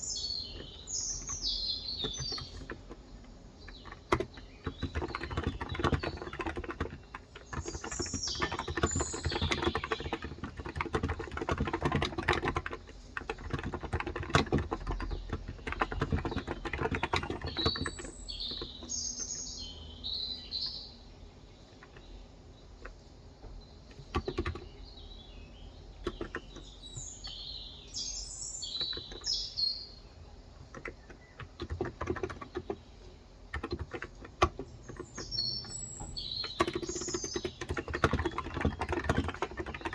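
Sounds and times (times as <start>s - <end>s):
birds chirping: 0.0s - 39.9s
keyboard typing: 0.4s - 19.4s, 23.8s - 24.8s, 26.0s - 27.4s, 28.6s - 29.4s, 30.6s - 39.9s.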